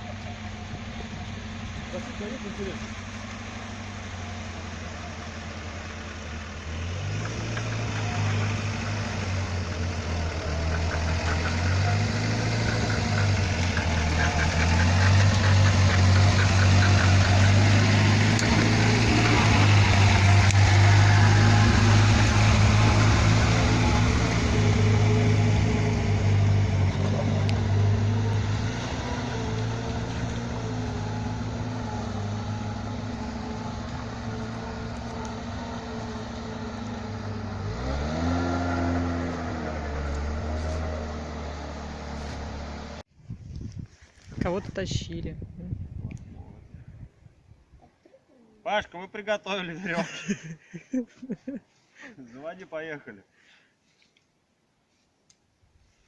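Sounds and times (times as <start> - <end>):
off-road vehicle engine running: 0.0 - 43.0.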